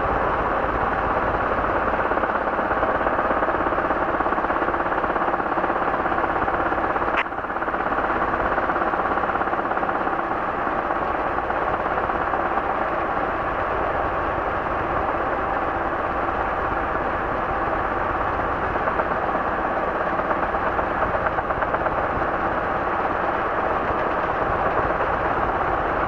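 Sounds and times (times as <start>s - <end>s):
helicopter engine and rotor drone: 0.0s - 26.0s
sharp click: 7.1s - 7.3s.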